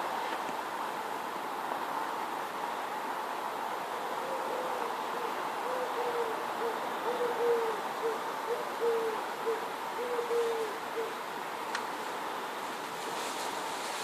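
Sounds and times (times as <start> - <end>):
steady background noise: 0.0 - 14.0
bird low hooting notes: 4.1 - 11.2.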